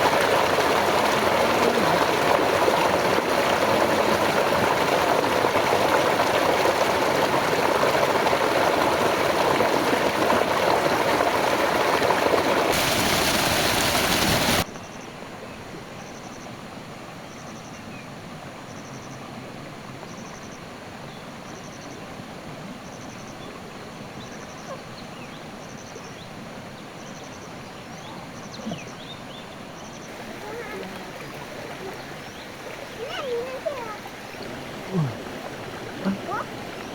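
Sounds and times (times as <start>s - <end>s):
stream water rushing: 0.0s - 14.7s, 26.3s - 36.9s
steady hiss: 12.7s - 14.6s.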